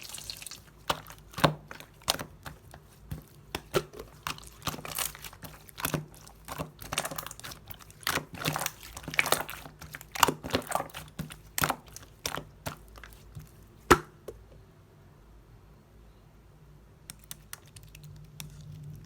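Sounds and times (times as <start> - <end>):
slime squeezed by hand: 0.0 - 0.7.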